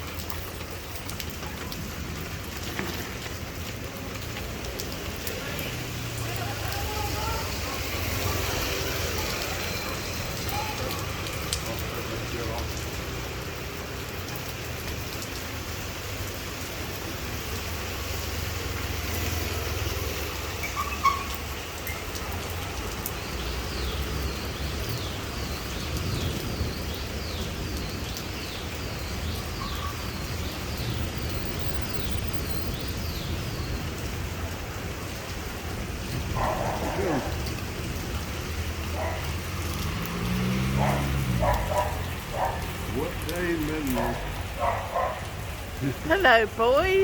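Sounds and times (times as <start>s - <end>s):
heavy rain pouring: 0.0s - 47.0s
high chirping: 29.6s - 33.3s.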